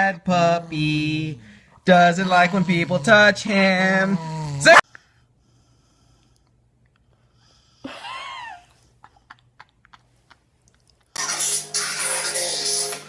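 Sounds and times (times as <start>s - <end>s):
music: 11.2s - 13.0s.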